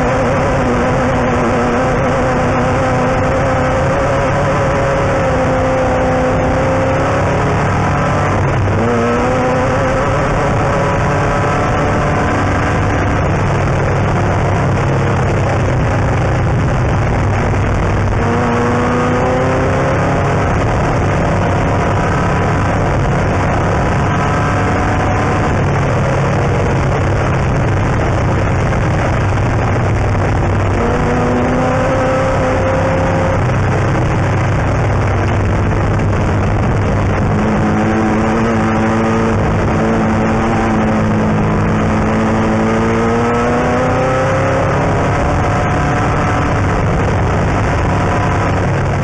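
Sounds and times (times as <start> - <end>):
car engine running hard: 0.0 - 49.0
tyre and dirt-track noise: 0.0 - 49.0.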